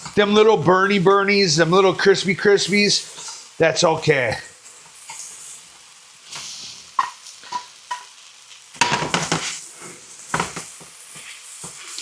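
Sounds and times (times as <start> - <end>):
light sizzle: 0.0 - 12.0
utensil scraping frying pan: 3.0 - 3.6, 6.3 - 12.0.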